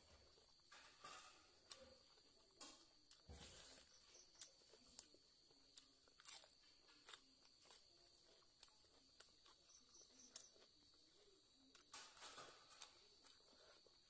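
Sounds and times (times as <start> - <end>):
chewing raw vegetables: 0.0 - 14.0.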